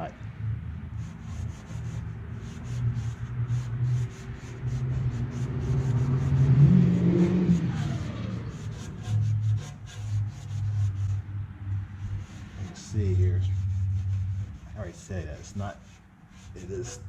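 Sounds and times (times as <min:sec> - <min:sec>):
rag scrubbing metal: 0:01.0 - 0:17.0
car driving past: 0:02.6 - 0:09.4.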